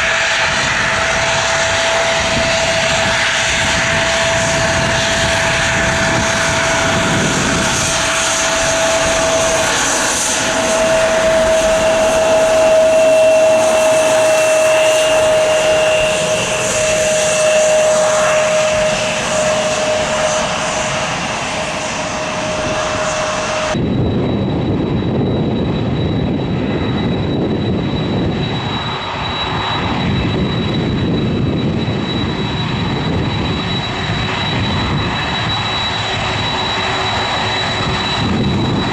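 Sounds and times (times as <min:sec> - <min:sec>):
deep aircraft rumble: 0:00.0 - 0:38.9
jet engines whining: 0:00.0 - 0:38.9.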